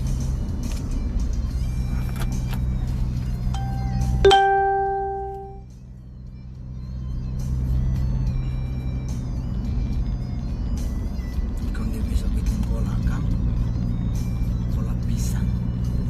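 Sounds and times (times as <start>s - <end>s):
low vehicle hum: 0.0s - 16.0s
bell-like chime: 3.6s - 5.6s.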